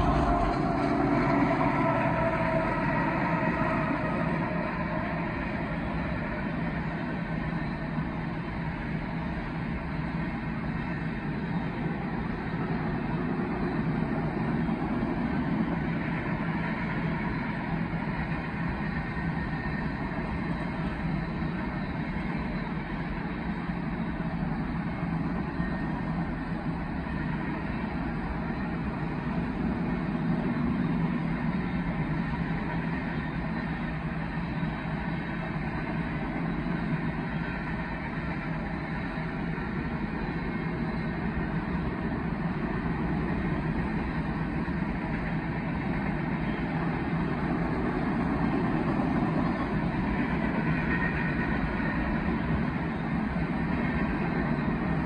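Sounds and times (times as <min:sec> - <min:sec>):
locomotive engine drone: 0:00.0 - 0:55.0
steel wheels rumbling on rails: 0:00.0 - 0:55.0.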